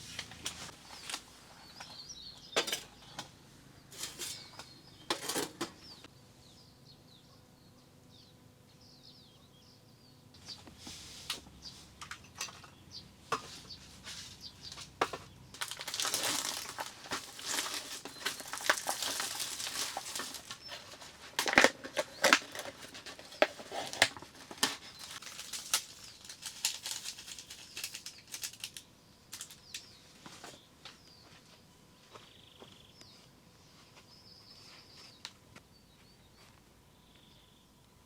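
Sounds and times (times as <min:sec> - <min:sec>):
rustling and crinkling material: 0:00.0 - 0:02.0, 0:13.4 - 0:30.6.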